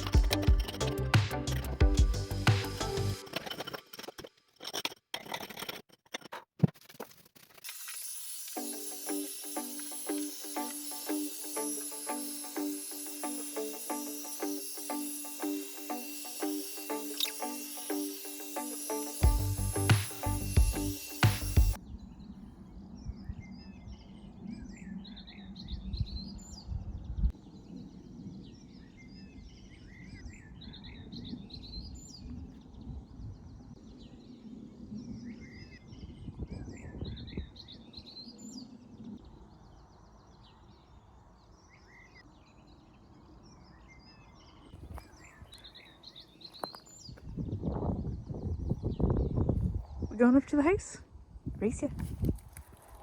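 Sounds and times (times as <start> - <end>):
songbird chirping: 21.7 - 50.9.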